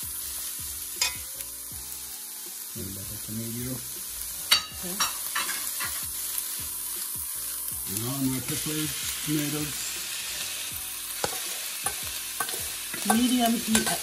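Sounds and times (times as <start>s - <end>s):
onions sizzling in a pot: 0.0s - 14.0s
metal spoon clinking: 11.2s - 14.0s.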